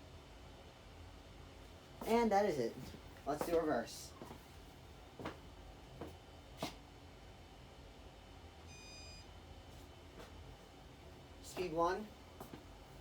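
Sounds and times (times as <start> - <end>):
short electronic beep: 8.7 - 9.3.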